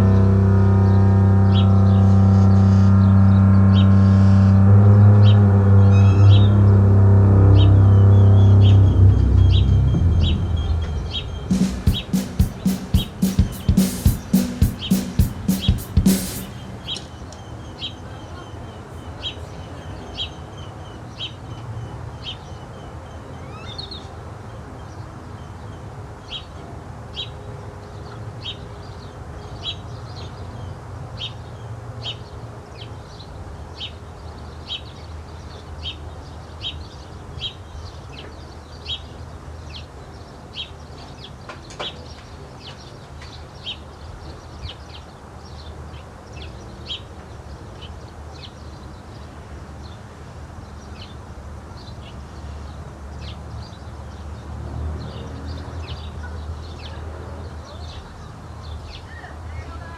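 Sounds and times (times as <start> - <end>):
low background rumble: 0.0 - 11.7
bird chirping: 7.5 - 21.4.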